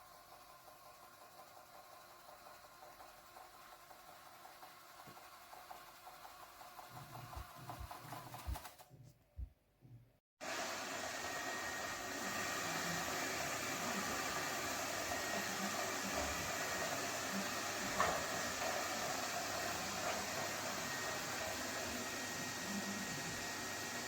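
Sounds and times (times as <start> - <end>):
robot vacuum whirring: 2.4 - 8.7, 10.4 - 24.0.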